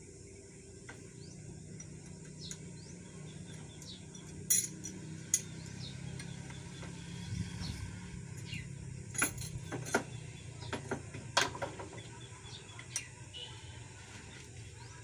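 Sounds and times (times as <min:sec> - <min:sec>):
low steady hum: 0:00.0 - 0:15.0
metal tools clinking: 0:03.5 - 0:06.3, 0:08.4 - 0:10.1.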